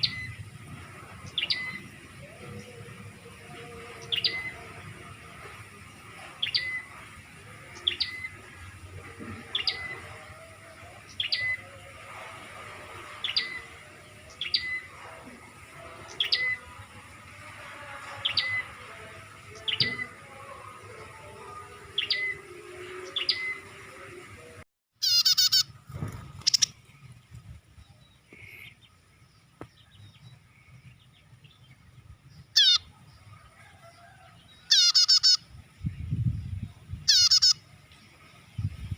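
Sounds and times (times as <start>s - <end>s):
harsh bird call: 25.0s - 25.8s, 34.6s - 35.5s, 37.1s - 37.6s.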